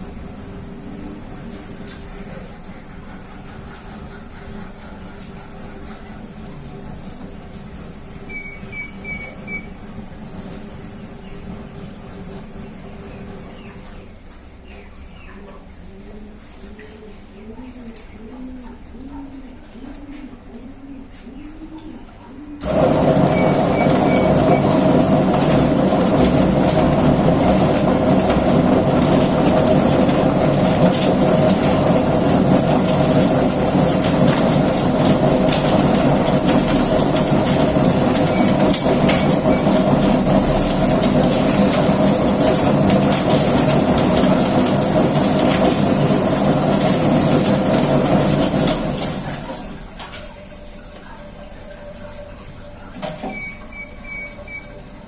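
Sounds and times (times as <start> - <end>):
feather plucker machine running: 22.6 - 49.6.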